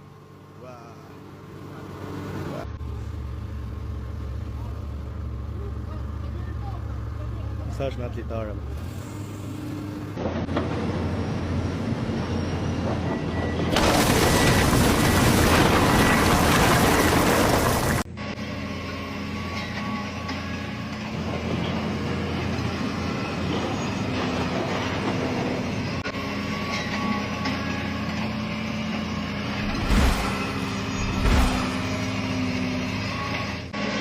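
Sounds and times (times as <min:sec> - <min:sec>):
diesel engine running: 0:00.0 - 0:12.5, 0:28.3 - 0:33.9
low thumps: 0:31.0 - 0:31.9.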